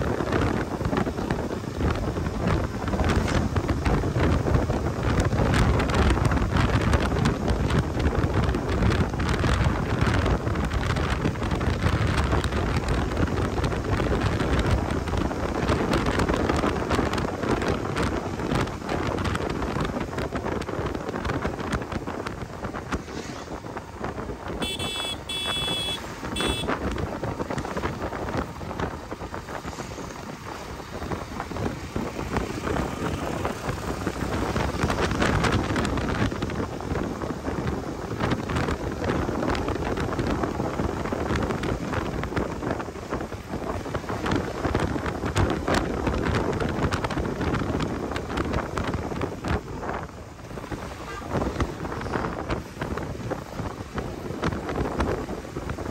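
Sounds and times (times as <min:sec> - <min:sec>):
road and vehicle noise: 0:00.0 - 0:55.9
wind rushing over microphone: 0:00.0 - 0:55.9
vehicle horn pulses: 0:24.5 - 0:26.9, 0:50.8 - 0:52.4.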